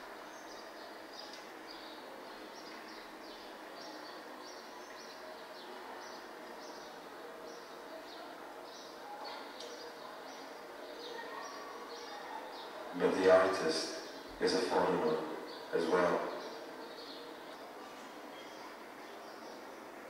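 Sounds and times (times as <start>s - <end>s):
faint outdoor ambience: 0.0s - 20.0s.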